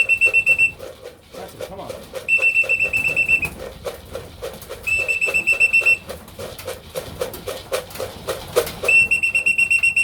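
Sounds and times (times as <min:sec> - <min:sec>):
steady rhythmic rattling: 0:00.0 - 0:10.0
pea whistle trilling blast: 0:04.9 - 0:06.0, 0:08.9 - 0:10.0.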